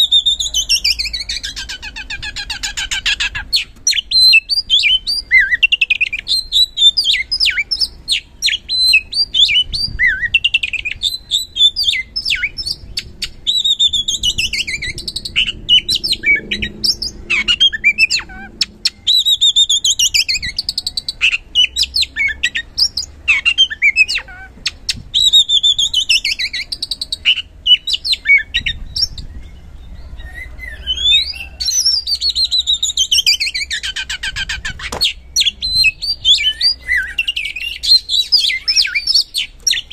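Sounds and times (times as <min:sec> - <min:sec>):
bird singing whistles and chatter: 0:00.0 - 0:39.9.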